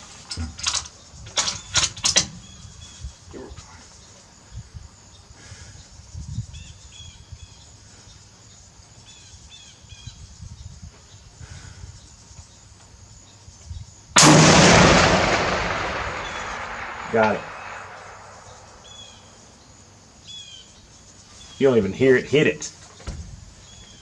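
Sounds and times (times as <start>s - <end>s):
low rumble: 14.2s - 18.8s
rifle shot: 14.2s - 19.0s.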